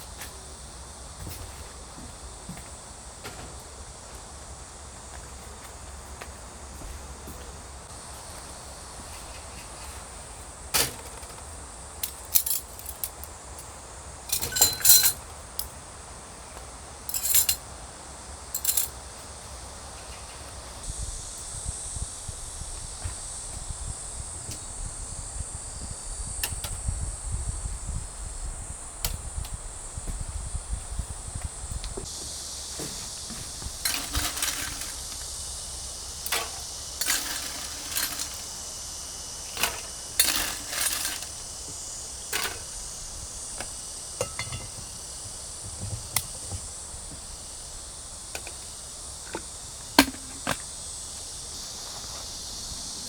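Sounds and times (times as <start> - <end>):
high insect drone: 0.0 - 53.0
clinks and clatters: 12.0 - 13.3, 14.3 - 15.2, 17.1 - 17.6, 18.6 - 19.0, 33.8 - 35.3, 36.2 - 38.6, 39.5 - 41.4, 42.3 - 42.7, 44.2 - 44.9.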